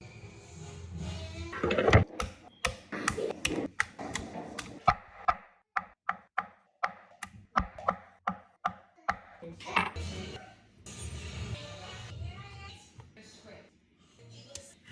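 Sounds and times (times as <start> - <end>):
knife chopping on cutting board: 1.7 - 9.3.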